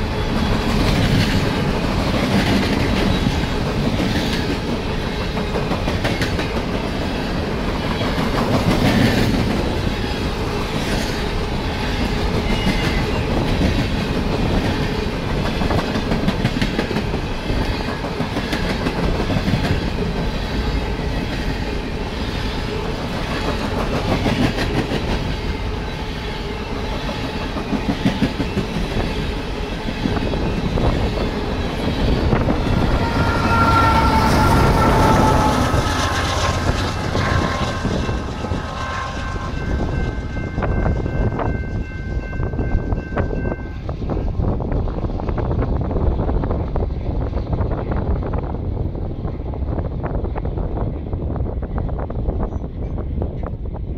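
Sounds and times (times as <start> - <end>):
diesel locomotive passing: 0.0 - 53.9
freight cars rumbling past: 30.5 - 40.5.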